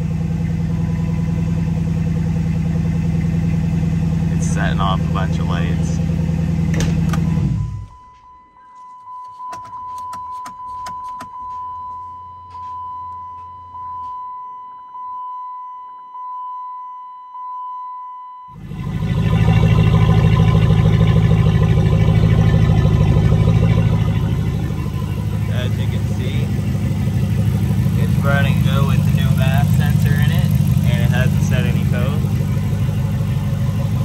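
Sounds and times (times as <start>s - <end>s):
electronic car chime: 0.0s - 2.7s, 7.1s - 34.0s
car engine running: 0.0s - 8.1s, 18.5s - 34.0s.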